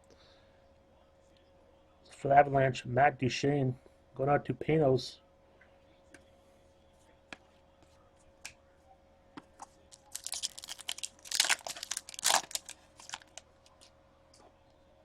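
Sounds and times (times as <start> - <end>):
card pack wrapper crinkling: 9.9 - 13.9.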